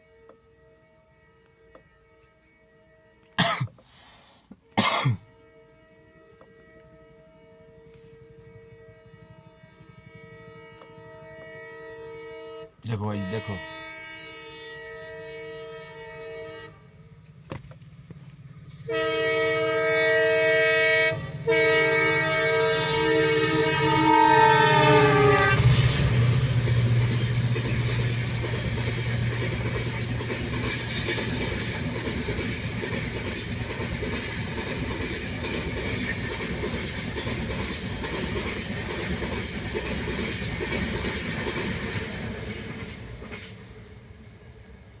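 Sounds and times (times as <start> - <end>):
train horn: 0.0 - 3.9, 4.6 - 17.2, 18.7 - 32.1
train rumbling past: 4.7 - 45.0
rail clatter: 25.0 - 43.7.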